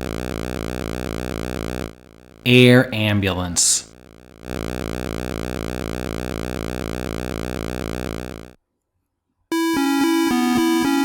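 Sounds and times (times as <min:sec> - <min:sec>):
pulsing electronic sound: 0:04.6 - 0:08.6.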